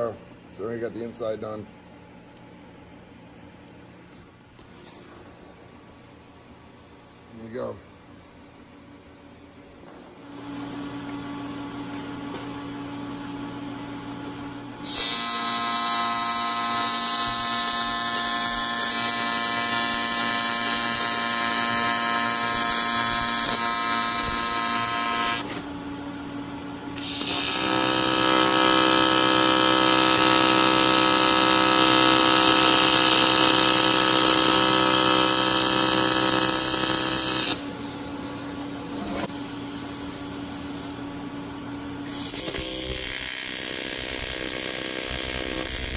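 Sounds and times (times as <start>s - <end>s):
welding machine hum: 10.1s - 41.3s, 42.0s - 45.9s
welding arc buzzing: 14.8s - 25.7s, 26.9s - 38.4s, 42.0s - 45.9s.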